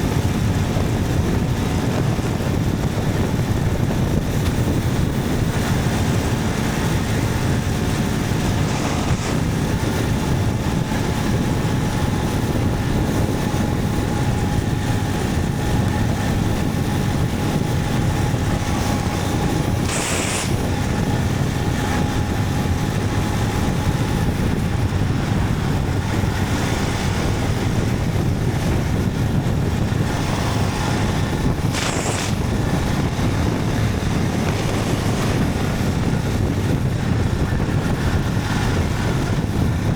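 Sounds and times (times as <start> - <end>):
motorcycle engine running: 0.0 - 39.9
wind rush on microphone: 0.0 - 39.9
brief hisses: 19.8 - 20.6.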